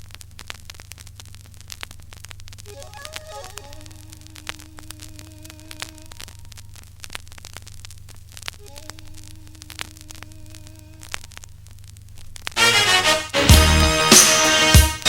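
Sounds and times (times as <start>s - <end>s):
vinyl surface crackle and pops: 0.0s - 15.0s
music: 2.7s - 4.1s, 12.6s - 15.0s
faint wavering tone: 2.7s - 6.4s
low hum: 2.7s - 7.0s, 8.5s - 11.8s.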